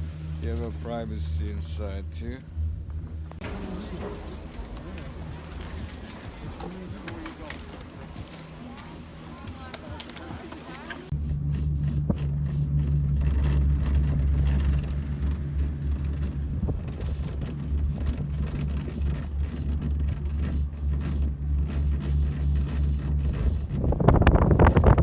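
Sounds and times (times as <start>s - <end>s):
car driving drone: 0.0s - 25.0s.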